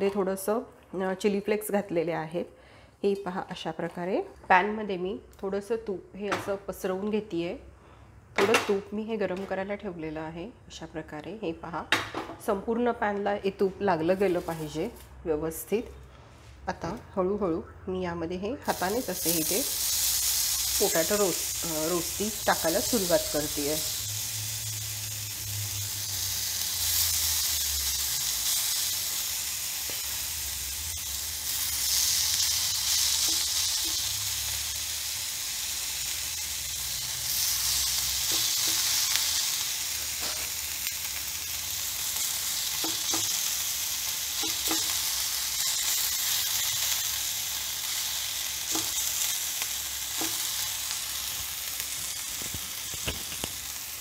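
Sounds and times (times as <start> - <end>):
potato sizzling in a frying pan: 14.0 - 15.1, 18.6 - 54.0.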